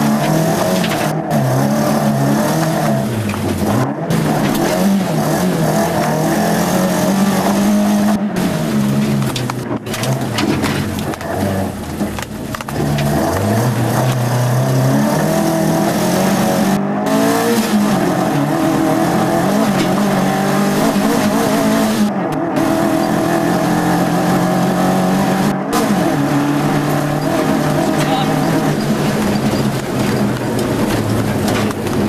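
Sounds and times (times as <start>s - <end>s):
rally car engine from inside: 0.0s - 32.0s
constant rushing noise: 25.9s - 32.0s.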